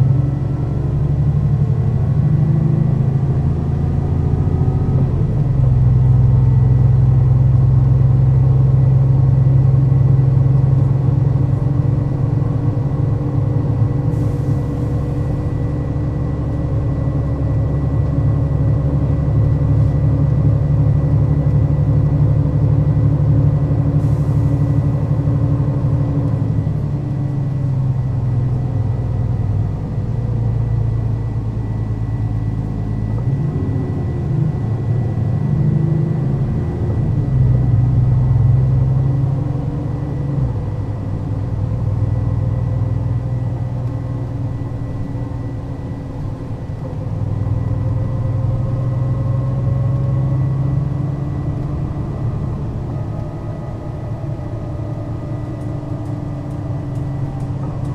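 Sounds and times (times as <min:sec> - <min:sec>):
bus engine running: 0:00.0 - 0:57.9.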